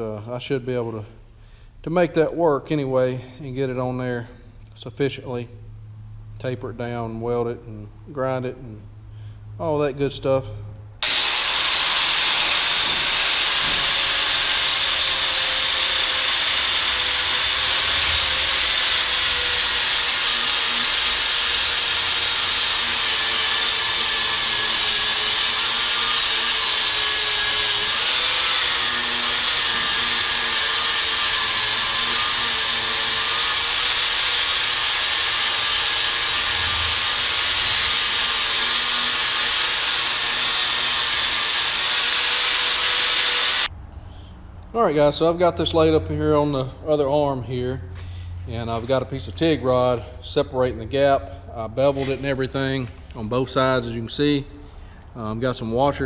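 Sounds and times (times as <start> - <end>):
angle grinder on metal: 11.0 - 43.7.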